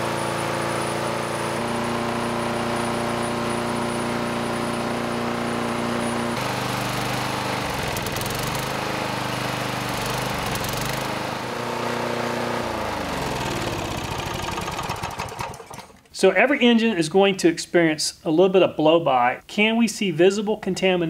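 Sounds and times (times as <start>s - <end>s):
lawn mower engine running: 0.0s - 16.1s.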